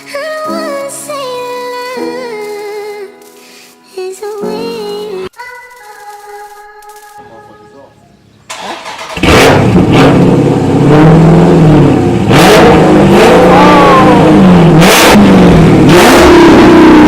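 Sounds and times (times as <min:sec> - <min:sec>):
exhaust cracks: 0:08.4 - 0:17.0
car engine revving: 0:08.5 - 0:17.0.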